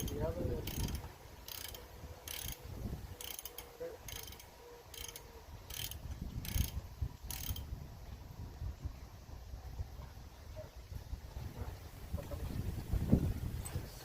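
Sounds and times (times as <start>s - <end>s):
ratchet wrench clicking: 0.0s - 7.7s.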